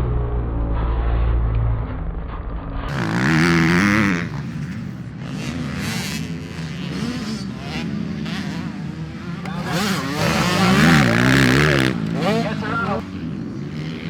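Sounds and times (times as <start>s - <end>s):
low rumble: 0.0s - 3.0s
dirt bike engines revving: 2.9s - 14.0s.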